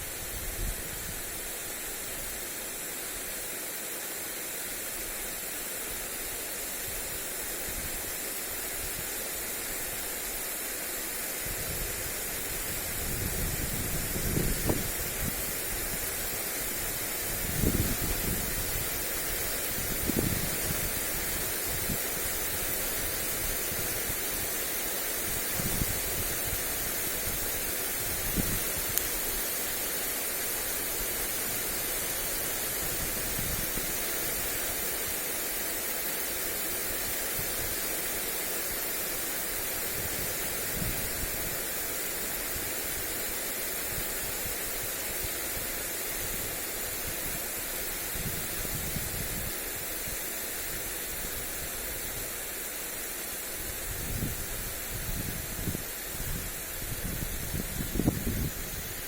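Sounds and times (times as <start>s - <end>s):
sprinkler spraying water: 0.0s - 59.0s
wind buffeting microphone: 11.5s - 16.1s, 17.2s - 19.0s, 19.7s - 22.1s, 53.7s - 59.0s.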